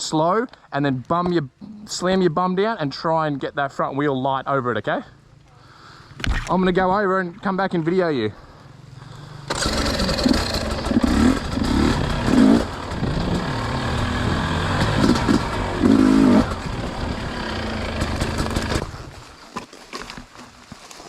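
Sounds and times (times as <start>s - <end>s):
dirt bike engine revving: 8.4s - 19.2s.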